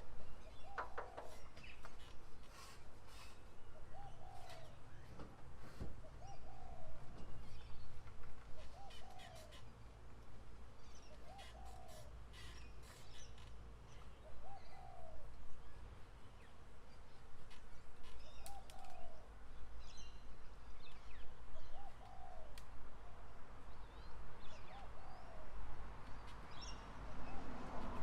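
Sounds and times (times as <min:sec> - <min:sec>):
bird calling: 0:00.4 - 0:05.2, 0:08.6 - 0:09.7, 0:11.0 - 0:15.2.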